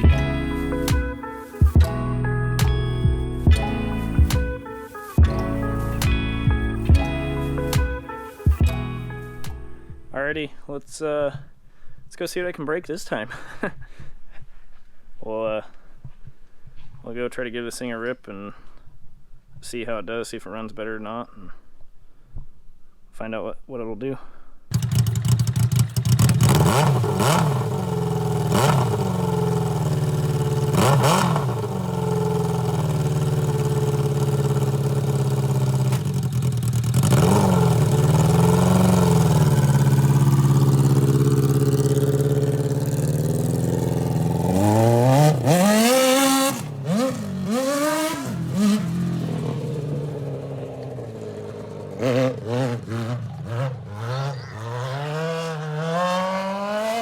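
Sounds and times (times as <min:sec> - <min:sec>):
motorcycle engine revving: 0:00.0 - 0:02.0, 0:24.7 - 0:57.0.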